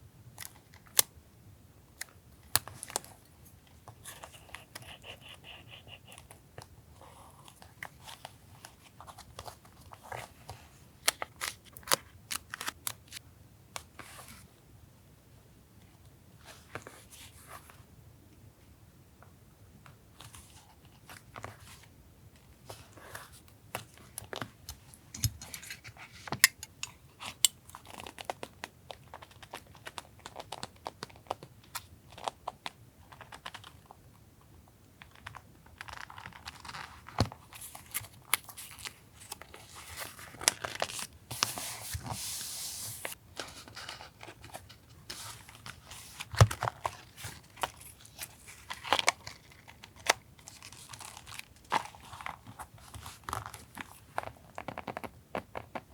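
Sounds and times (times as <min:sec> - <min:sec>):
paper rustling and crinkling: 0:35.2 - 0:55.1.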